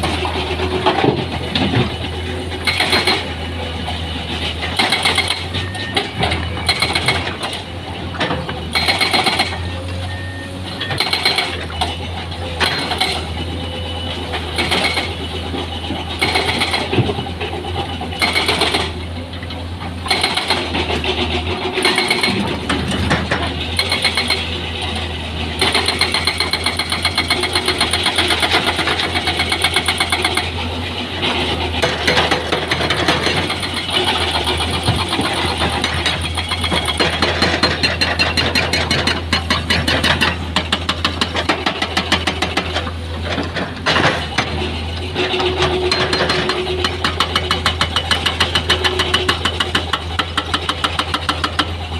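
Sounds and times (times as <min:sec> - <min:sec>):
diesel engine running: 0:00.0 - 0:51.9
metallic clanks and knocks: 0:34.6 - 0:51.7.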